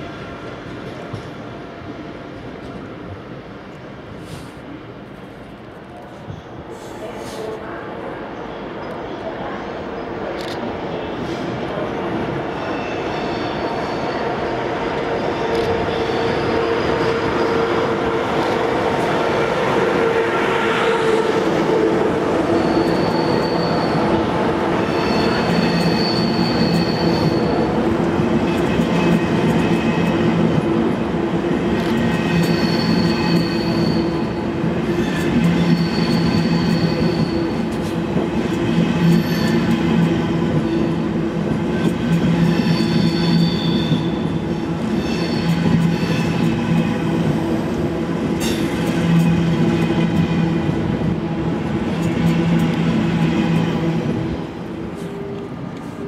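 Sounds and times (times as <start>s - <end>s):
train humming: 0.0s - 56.0s
high-pitched squeals: 12.6s - 27.8s, 32.1s - 37.7s.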